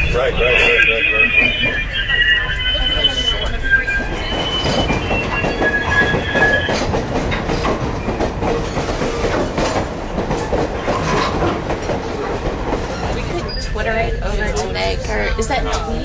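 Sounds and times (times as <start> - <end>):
train wheel squeal: 0.0 - 14.7
train rumbling: 0.0 - 16.0
wheels clacking over rails: 4.3 - 13.8.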